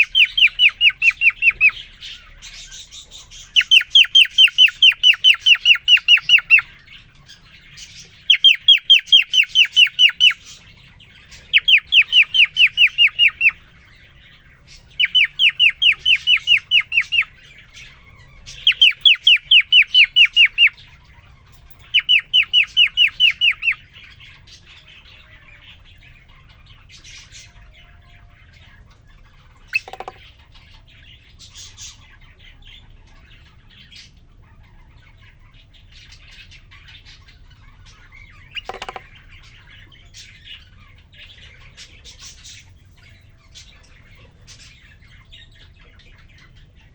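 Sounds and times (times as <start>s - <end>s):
cockatiel whistling: 0.0s - 1.8s, 2.7s - 6.7s, 8.2s - 10.5s, 11.5s - 13.6s, 15.0s - 17.3s, 18.5s - 20.8s, 21.8s - 23.8s, 29.7s - 30.2s.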